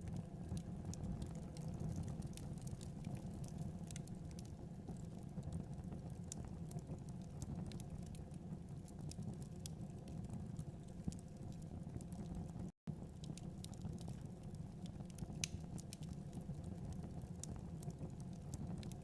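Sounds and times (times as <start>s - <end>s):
low rumble of flame: 0.0s - 19.0s
burning wood snapping: 15.4s - 16.1s.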